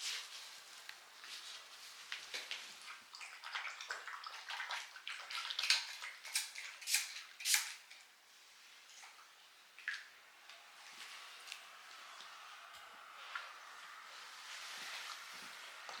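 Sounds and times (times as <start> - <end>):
puppy lapping water: 2.5 - 7.2.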